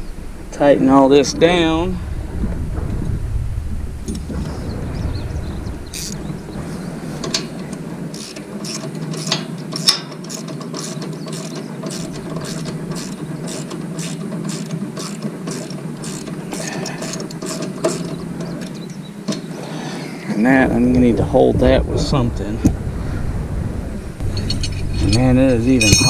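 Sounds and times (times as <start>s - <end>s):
ratchet wrench clicking: 8.1s - 18.1s.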